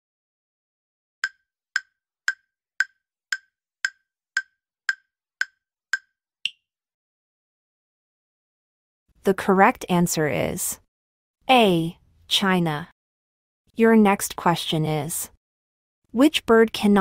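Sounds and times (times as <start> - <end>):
clock-like timer ticks: 1.2 - 6.1.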